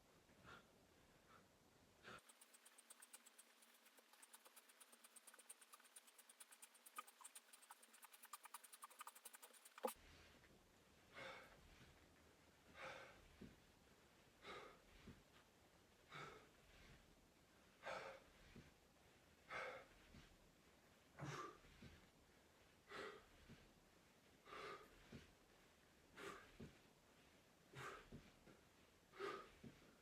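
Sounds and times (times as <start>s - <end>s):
person breathing rhythmically: 0.3s - 10.4s, 11.0s - 12.0s, 12.6s - 30.0s
rapid faint ticking: 2.2s - 10.0s.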